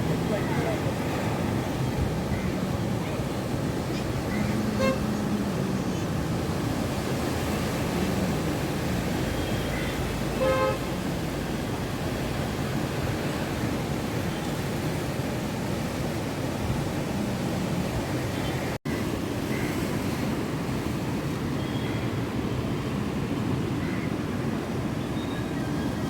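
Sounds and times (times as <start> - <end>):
surf rushing: 0.0 - 18.2
wind: 0.0 - 26.0
vehicle horn tooting: 4.8 - 5.0, 10.3 - 11.0.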